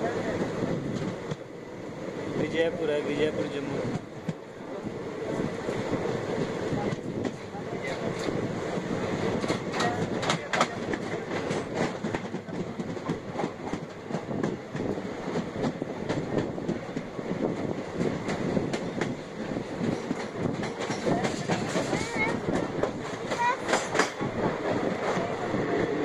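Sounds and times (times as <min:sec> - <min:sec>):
train wheels rumbling on track: 0:00.0 - 0:26.0
wheels clicking over rail joints: 0:18.0 - 0:24.3.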